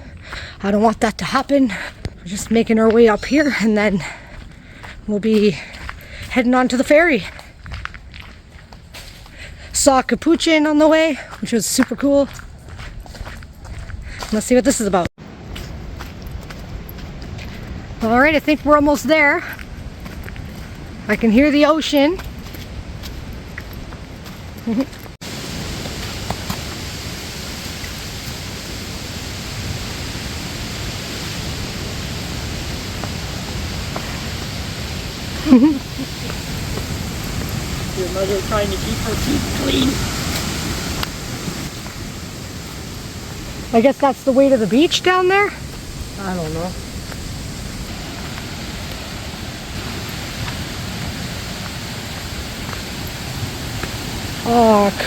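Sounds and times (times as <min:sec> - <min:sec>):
water rushing: 0:15.3 - 0:55.0.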